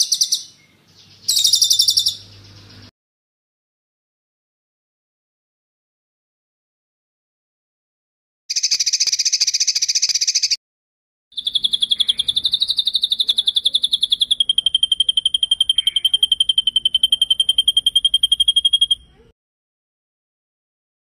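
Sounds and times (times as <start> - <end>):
songbird rolling trills: 0.0 - 2.9, 11.4 - 19.2.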